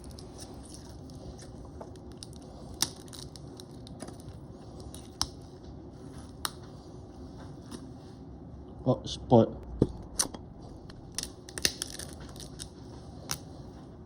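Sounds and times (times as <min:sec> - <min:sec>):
crab shell cracking: 0:00.0 - 0:04.3, 0:11.0 - 0:12.7
low background hum: 0:00.0 - 0:14.0.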